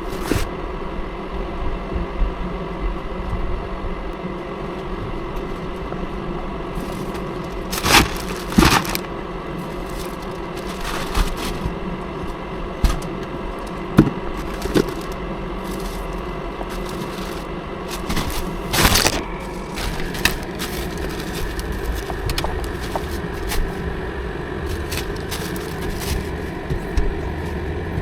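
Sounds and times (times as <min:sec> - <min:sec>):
truck engine humming: 0:04.3 - 0:28.0
sharp cracks or rattles: 0:06.8 - 0:09.1.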